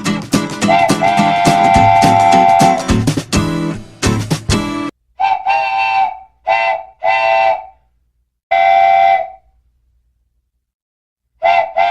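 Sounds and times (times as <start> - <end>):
train whistle tooting: 0.7 - 2.9, 5.2 - 7.9, 8.5 - 9.6, 11.4 - 11.9.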